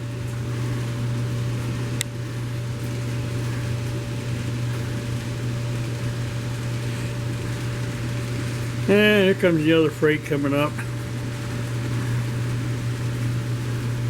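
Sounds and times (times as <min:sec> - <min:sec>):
model train motor humming: 0:04.4 - 0:14.0.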